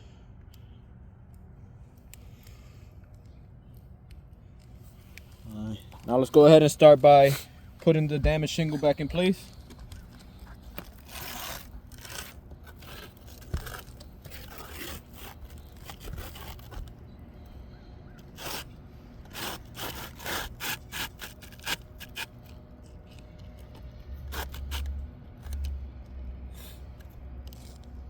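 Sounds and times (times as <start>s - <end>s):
roof shingle scraping: 6.0s - 17.0s, 18.2s - 23.0s.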